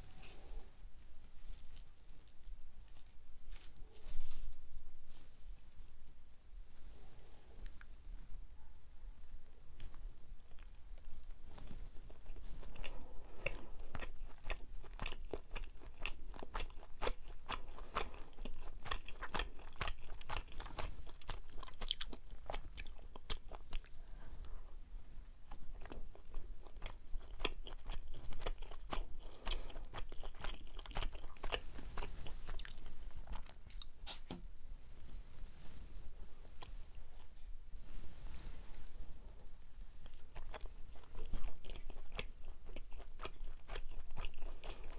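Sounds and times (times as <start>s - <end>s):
chewing rice cake: 9.8s - 24.2s, 25.5s - 34.0s, 40.0s - 44.9s.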